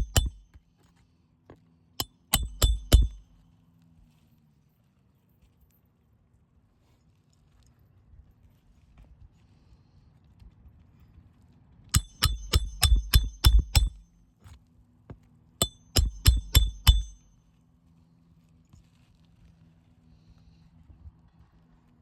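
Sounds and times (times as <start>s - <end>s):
hammer blows on nails: 0.0s - 0.6s, 2.0s - 3.3s, 12.0s - 14.2s, 15.6s - 17.3s.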